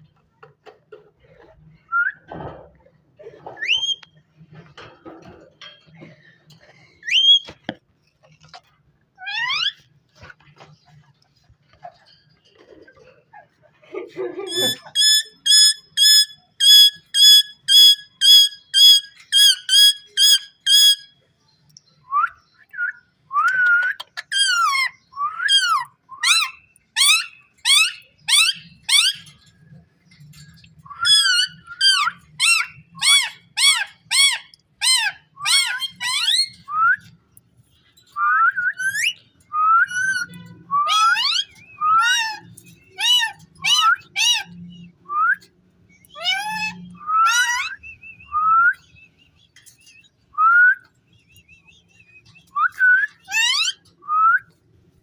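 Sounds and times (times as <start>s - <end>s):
parakeet whistling: 14.6s - 21.1s.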